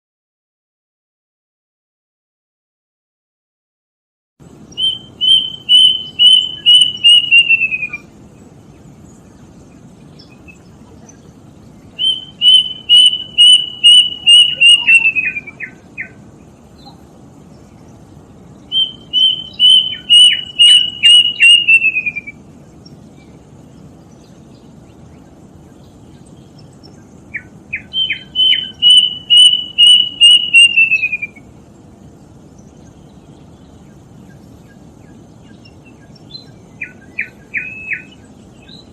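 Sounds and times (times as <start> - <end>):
faint steady hiss: 4.4 - 38.9
cuckoo whistled song: 4.7 - 8.1, 12.0 - 16.2, 18.7 - 22.4, 27.3 - 31.5, 35.5 - 38.9.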